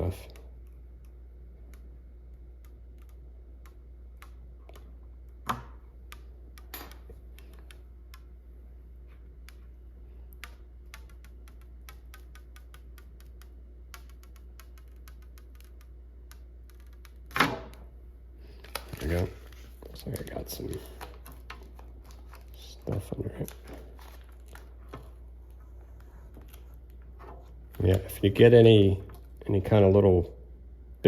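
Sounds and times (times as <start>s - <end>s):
steady low hum: 0.0s - 31.0s
plastic film clicking on glass: 18.6s - 22.6s.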